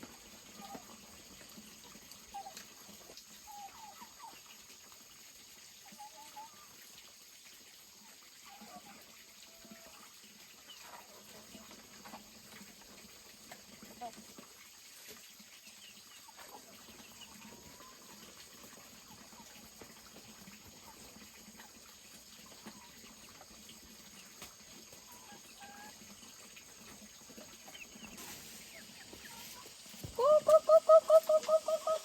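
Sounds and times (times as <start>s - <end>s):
bird call rapid repeated notes: 30.2s - 32.0s.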